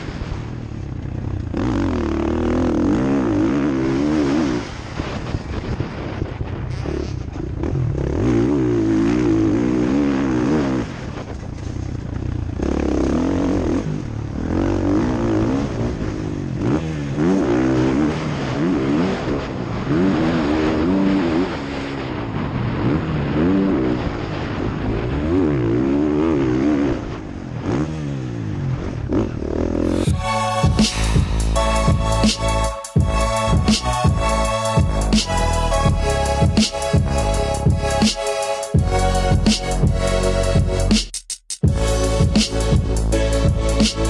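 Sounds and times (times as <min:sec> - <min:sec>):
motocross bike engine revving: 0:01.2 - 0:05.1, 0:06.7 - 0:11.3, 0:12.3 - 0:21.9, 0:29.1 - 0:41.0, 0:41.6 - 0:44.0
music: 0:29.9 - 0:44.0.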